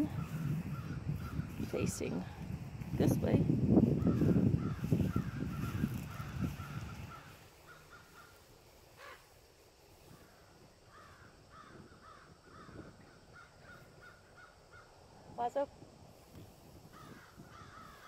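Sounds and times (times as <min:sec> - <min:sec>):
low rustling noise: 0:00.0 - 0:11.2, 0:15.1 - 0:18.0
bird calling: 0:04.1 - 0:08.4.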